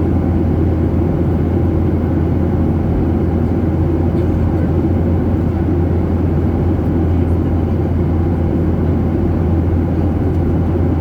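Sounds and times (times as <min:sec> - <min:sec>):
jet engine cabin drone: 0:00.0 - 0:11.0.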